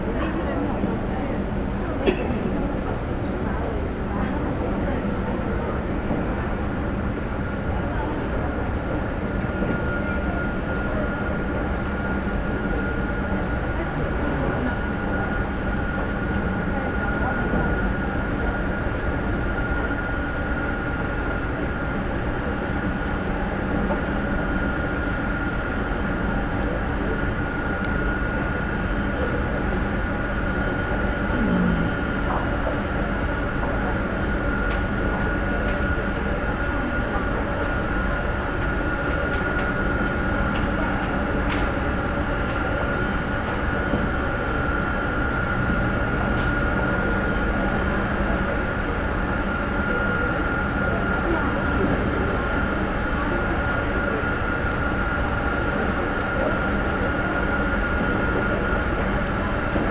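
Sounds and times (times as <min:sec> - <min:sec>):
jet aircraft running: 0:00.0 - 0:59.9.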